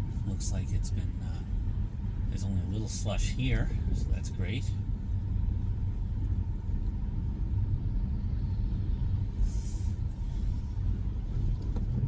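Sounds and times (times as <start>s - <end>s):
brief hiss: 9.4s - 10.0s.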